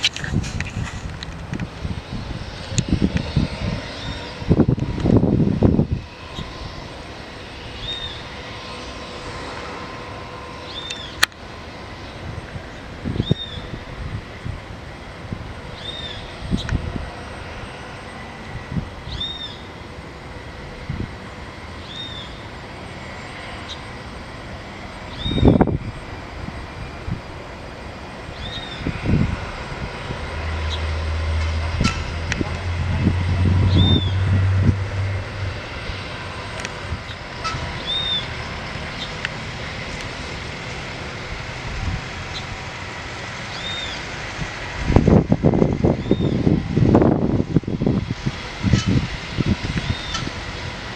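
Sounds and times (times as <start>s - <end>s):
distant helicopter drone: 0.0s - 50.9s
noisy background: 0.0s - 50.9s
steady mechanical hum: 0.0s - 50.9s
bird calling: 37.1s - 38.4s.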